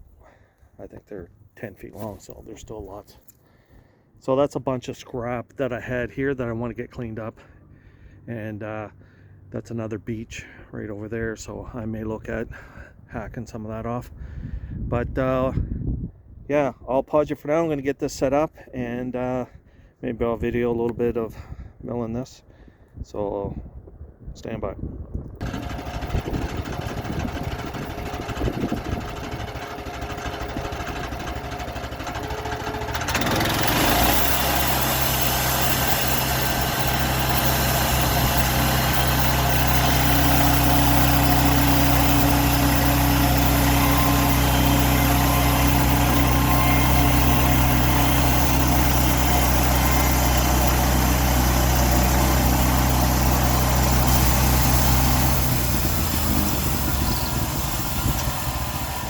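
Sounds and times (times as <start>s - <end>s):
gas engine running: 25.4s - 59.0s
steady higher tone: 34.7s - 58.6s.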